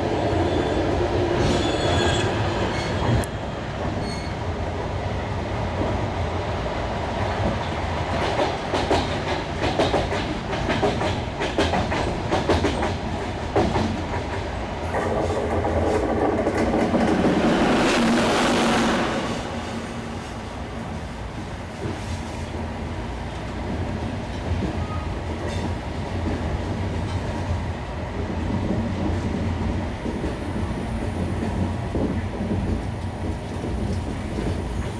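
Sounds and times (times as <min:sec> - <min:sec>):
train wheels rumbling on track: 0:00.0 - 0:34.9
rushing noise: 0:14.6 - 0:21.1.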